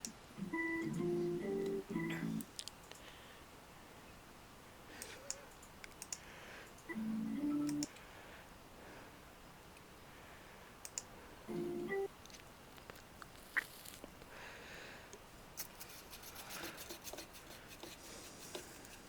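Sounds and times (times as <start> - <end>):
keyboard and mouse clicks: 5.0 - 6.9, 7.6 - 8.0, 10.8 - 11.1.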